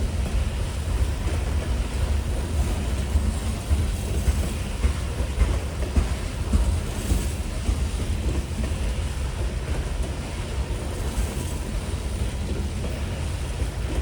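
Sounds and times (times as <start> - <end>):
freight train rumbling: 0.0 - 14.0.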